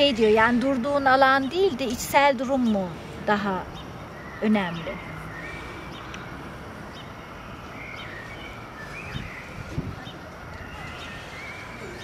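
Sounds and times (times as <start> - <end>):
outdoor background noise: 0.0 - 12.0
small birds chirping: 0.0 - 12.0.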